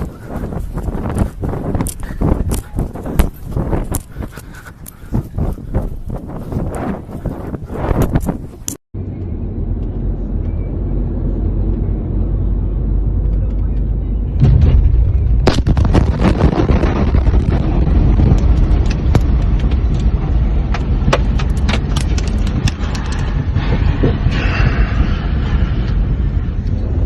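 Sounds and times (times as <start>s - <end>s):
explosion rumble: 14.2s - 27.0s
sharp cracks and crackles: 14.7s - 23.7s.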